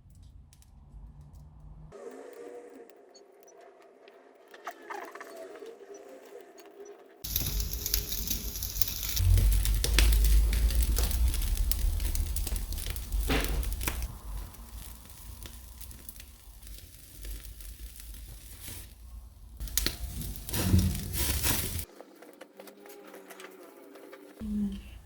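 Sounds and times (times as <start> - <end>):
coals crackling and snapping: 0.0 - 1.9, 7.2 - 25.0
skewers sizzling over charcoal: 7.2 - 21.9.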